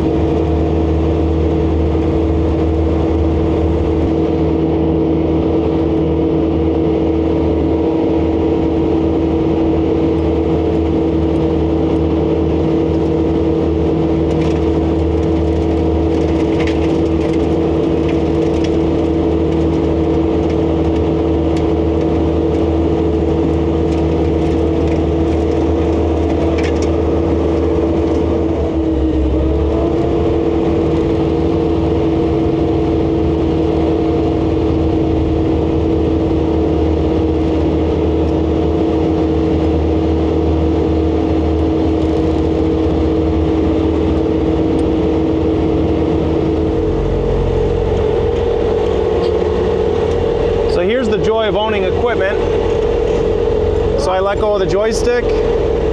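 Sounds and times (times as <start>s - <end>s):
diesel engine droning: 0.0s - 55.9s
hydraulic snowblower hum: 0.0s - 55.9s.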